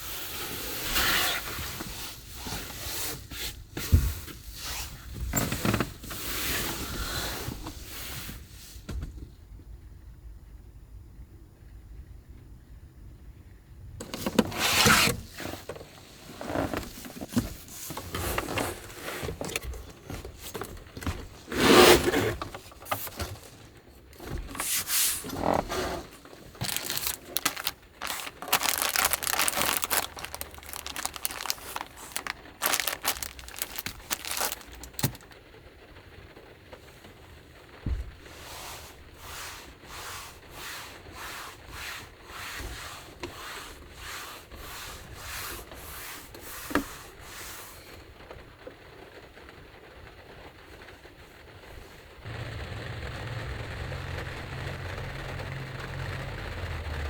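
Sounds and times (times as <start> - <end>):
rubbing and scraping strokes: 24.2 - 35.4, 38.3 - 47.1.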